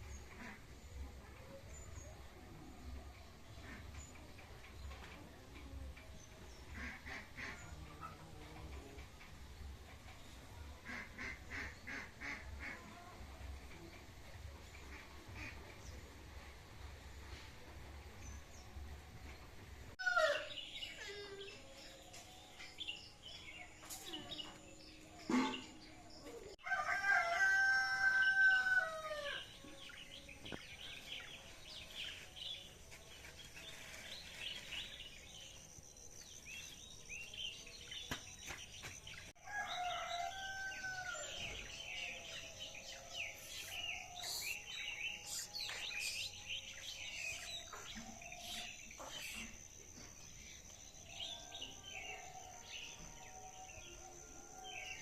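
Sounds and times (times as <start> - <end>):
songbirds chirping: 0.0 - 55.0
rooster crowing: 26.6 - 29.5, 39.4 - 42.0.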